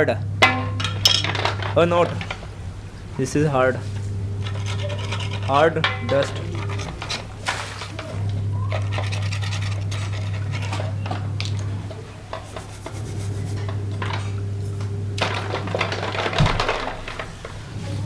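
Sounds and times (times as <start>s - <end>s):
steady low hum: 0.0s - 18.0s
scratchy scrubbing strokes: 3.8s - 7.9s, 12.3s - 13.9s.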